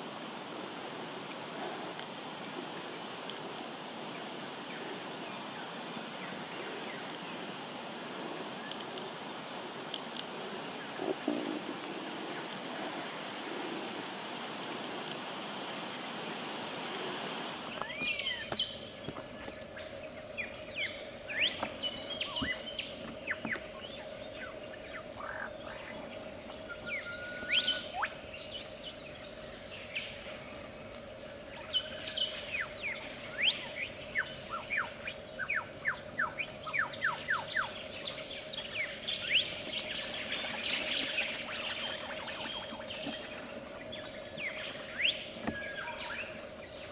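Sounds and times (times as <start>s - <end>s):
faint steady hum: 0.0s - 46.9s
steady hiss: 0.0s - 46.9s
lyrebird singing whistled notes: 26.7s - 28.2s.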